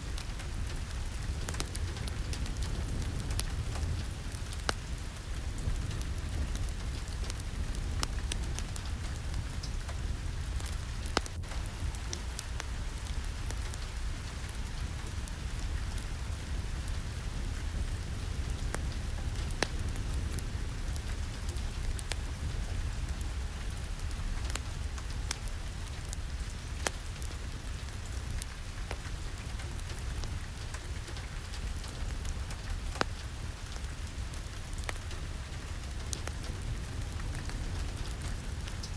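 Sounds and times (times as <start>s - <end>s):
deep rumble: 0.0s - 26.8s
steady rain: 0.0s - 38.9s
wood fire crackling: 0.0s - 38.9s.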